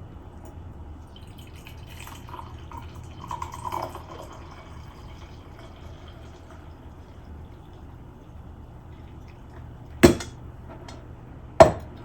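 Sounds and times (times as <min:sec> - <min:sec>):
tea pouring into a cup: 0:01.0 - 0:10.0.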